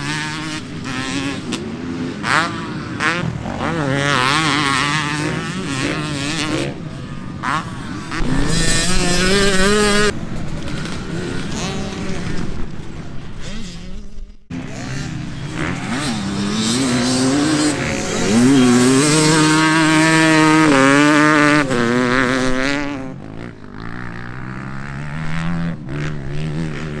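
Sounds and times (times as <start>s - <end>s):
motocross bike engines revving: 0.0s - 27.0s.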